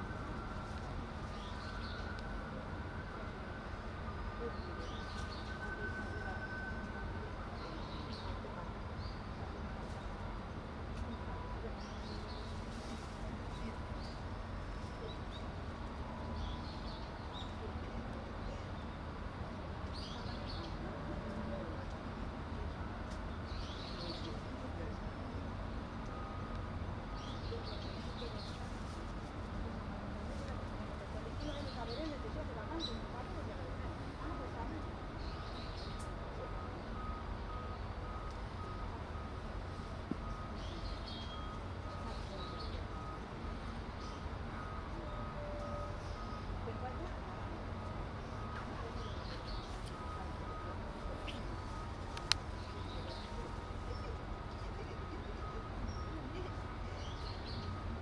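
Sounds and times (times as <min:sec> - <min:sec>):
low outdoor rumble: 0:00.0 - 0:58.0
small birds chirping: 0:27.1 - 0:28.9, 0:35.2 - 0:36.2, 0:40.2 - 0:43.2, 0:48.2 - 0:57.8
electronic warning beeps: 0:35.3 - 0:57.0.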